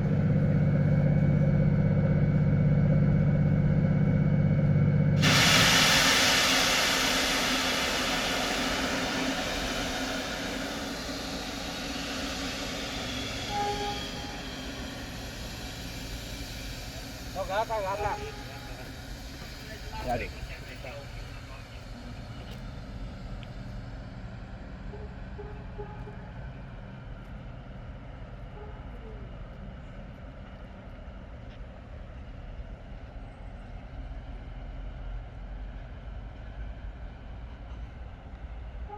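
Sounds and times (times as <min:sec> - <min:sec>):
steady low hum: 0:00.0 - 0:26.0
locomotive loud hiss: 0:05.2 - 0:24.5.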